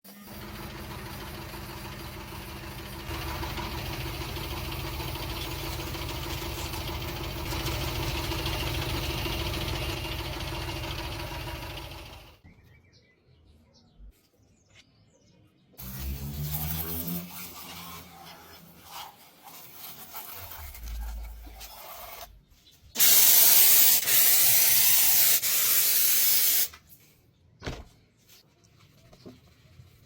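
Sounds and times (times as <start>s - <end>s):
small motor running: 0.1s - 12.4s, 15.8s - 18.2s
hiss: 23.0s - 26.8s.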